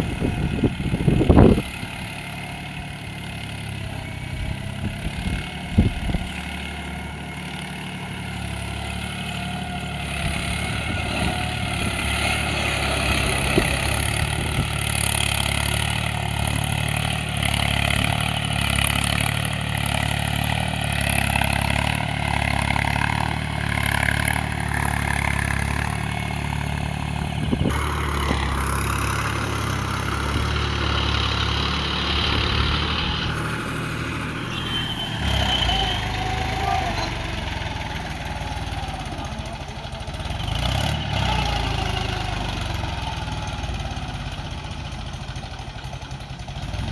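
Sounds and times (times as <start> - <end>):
mini tractor engine running: 0.0 - 46.9.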